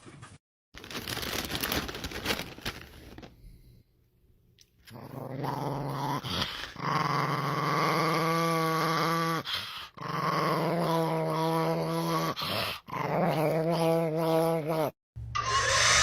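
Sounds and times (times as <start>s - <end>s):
dog growling: 4.9s - 15.0s.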